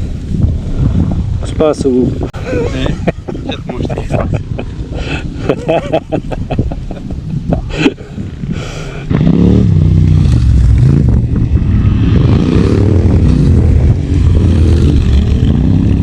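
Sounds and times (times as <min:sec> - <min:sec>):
motorcycle engine revving: 0:09.0 - 0:16.0.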